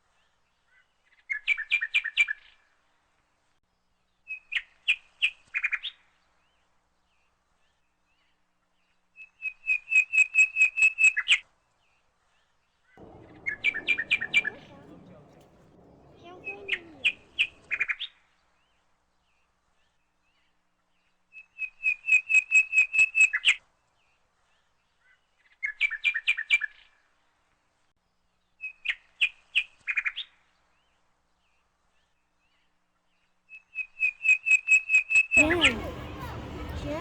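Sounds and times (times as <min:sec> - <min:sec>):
songbird singing: 0:13.0 - 0:17.8.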